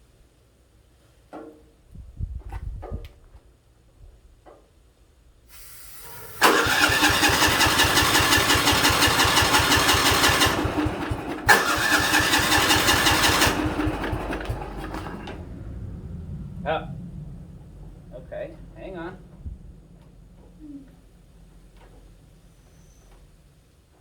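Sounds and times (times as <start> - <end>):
lawn tractor engine cranking: 6.0 - 15.6.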